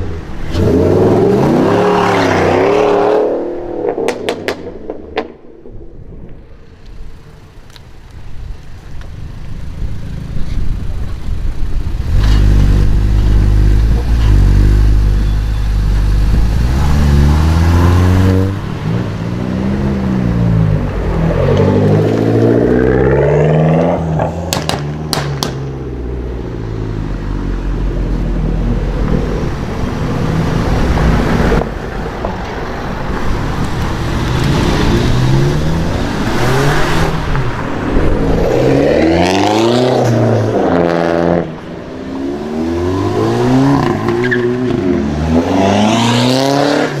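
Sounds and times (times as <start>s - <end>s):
sports cars accelerating: 0.1s - 4.6s, 12.1s - 32.2s, 32.8s - 47.0s
exhaust cracks: 23.7s - 25.8s.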